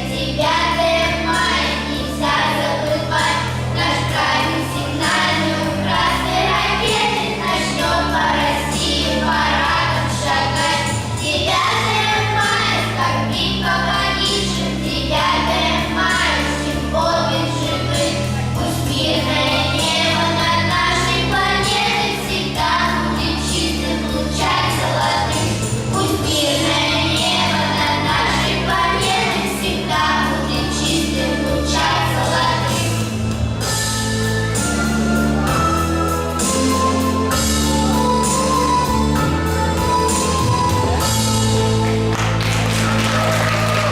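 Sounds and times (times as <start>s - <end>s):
vocal group singing: 0.0s - 34.2s, 35.4s - 43.9s
instrumental accompaniment: 0.0s - 43.9s
sustained low bass notes: 0.0s - 43.9s.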